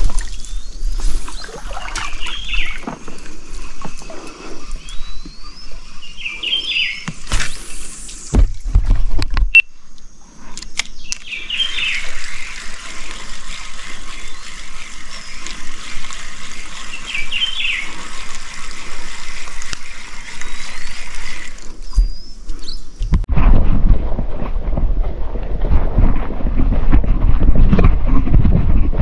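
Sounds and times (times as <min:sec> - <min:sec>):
bird chirping: 0:00.2 - 0:08.3, 0:10.8 - 0:12.7, 0:16.5 - 0:18.2, 0:20.3 - 0:23.2
steady hiss: 0:00.5 - 0:08.9.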